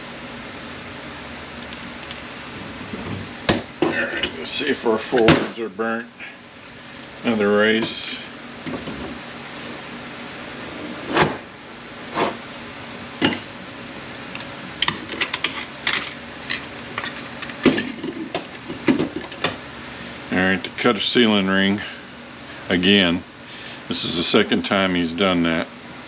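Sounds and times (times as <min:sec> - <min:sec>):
metal parts clinking on workbench: 0:15.2 - 0:18.6.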